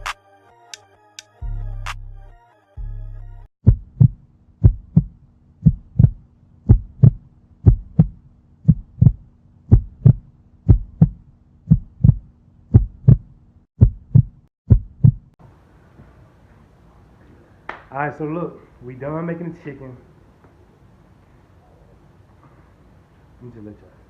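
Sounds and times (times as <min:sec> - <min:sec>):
heartbeat thumps: 0:03.6 - 0:15.4.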